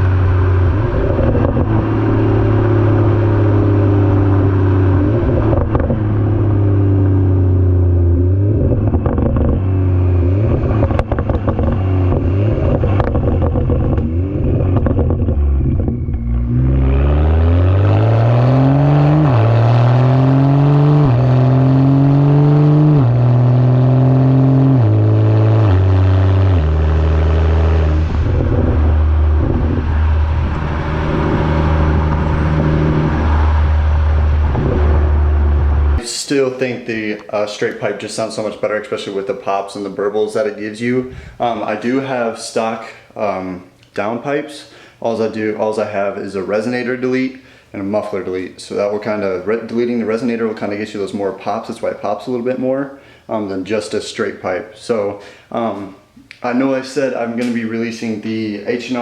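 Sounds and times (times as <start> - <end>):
car engine revving through exhaust: 0.0 - 36.0
exhaust crackling pops: 0.1 - 2.4, 5.2 - 6.7, 8.4 - 18.5, 24.8 - 36.1, 57.3 - 58.0.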